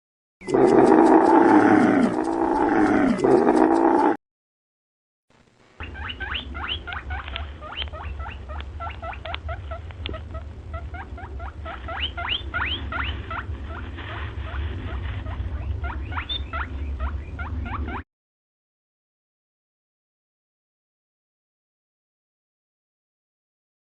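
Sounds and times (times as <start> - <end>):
low steady hum: 5.3 - 18.0
small animal squeaking: 5.8 - 18.0.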